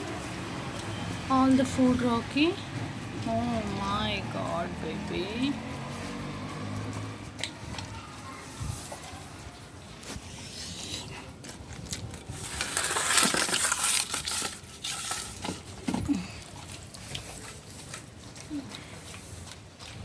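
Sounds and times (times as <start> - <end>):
rustling: 7.9 - 20.0.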